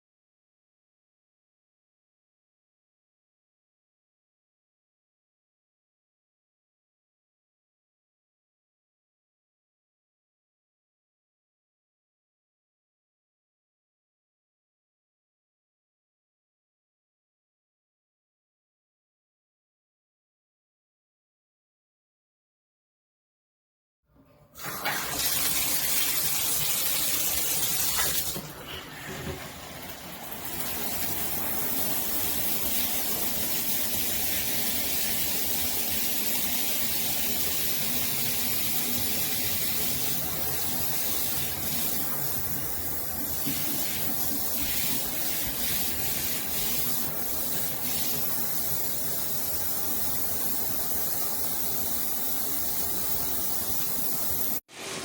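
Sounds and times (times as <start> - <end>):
water spraying from showerhead: 24.6 - 55.0.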